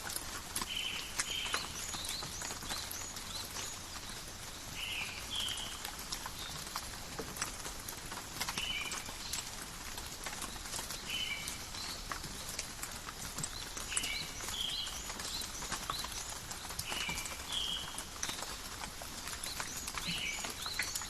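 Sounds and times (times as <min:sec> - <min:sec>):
rain falling in a forest: 0:00.0 - 0:21.0.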